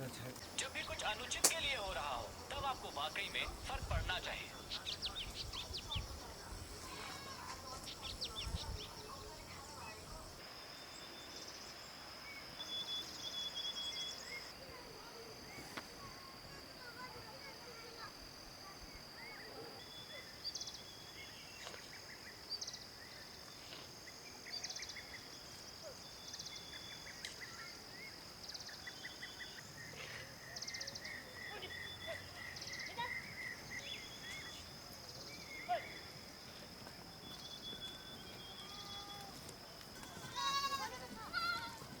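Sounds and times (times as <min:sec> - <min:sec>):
birds chirping and trilling: 0:00.4 - 0:10.4, 0:26.1 - 0:36.2
high-pitched insect drone: 0:02.1 - 0:25.6.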